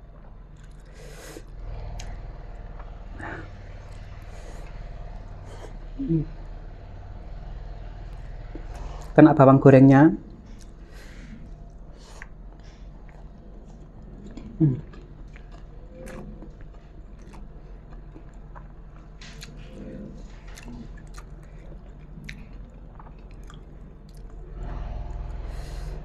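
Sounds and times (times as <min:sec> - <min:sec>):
person chewing food: 0:00.1 - 0:09.2, 0:10.3 - 0:26.0
wet mouth clicks and crunches: 0:12.0 - 0:24.4.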